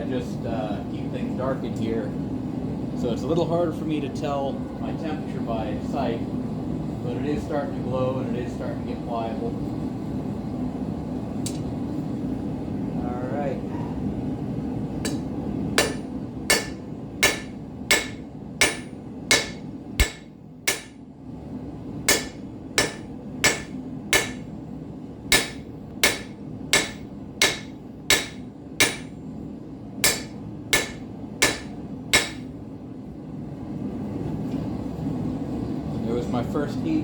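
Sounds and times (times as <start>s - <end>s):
propane forge roaring: 0.0s - 37.0s
hammer striking steel on anvil: 15.0s - 21.0s, 22.1s - 24.5s, 25.3s - 29.2s, 30.0s - 32.5s.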